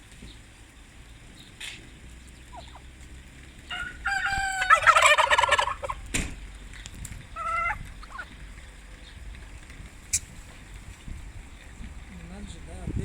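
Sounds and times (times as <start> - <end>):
turkey gobbling: 2.4 - 6.1, 7.3 - 8.5.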